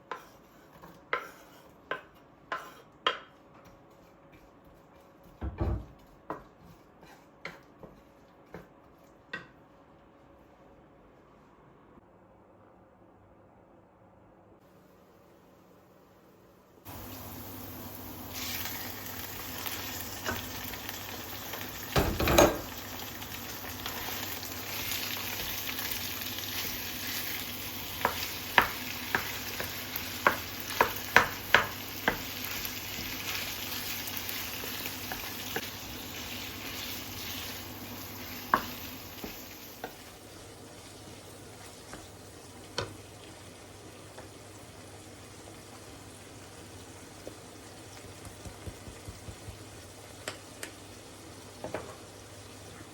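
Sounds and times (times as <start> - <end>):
food sizzling in a pan: 0.0 - 3.4, 16.8 - 52.9
utensil tapping a pan: 28.0 - 32.3, 48.2 - 50.4.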